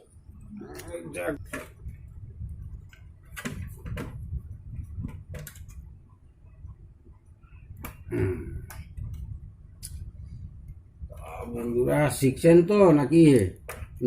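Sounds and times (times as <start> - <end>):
steady low rumble: 0.0 - 12.6
plastic cabinet clicks and knocks: 3.4 - 4.2.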